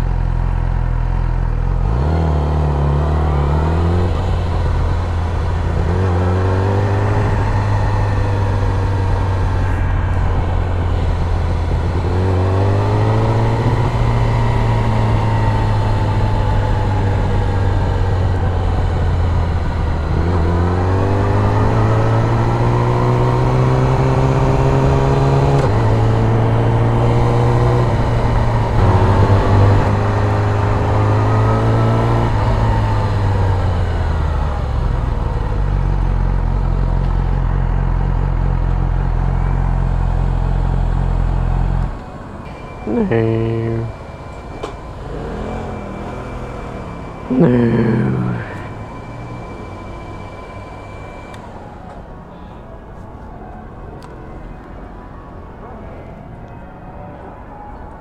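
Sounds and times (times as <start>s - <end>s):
motorcycle engine accelerating: 0.0s - 42.0s, 44.9s - 49.8s.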